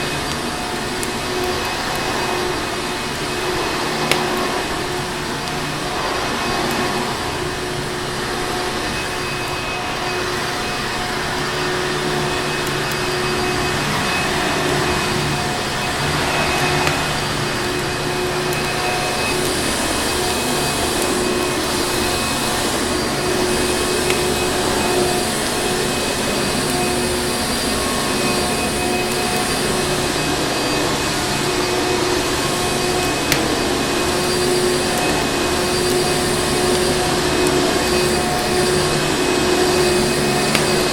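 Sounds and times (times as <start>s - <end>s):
vacuum cleaner motor running: 0.0s - 40.9s
wood fire crackling: 0.0s - 40.9s.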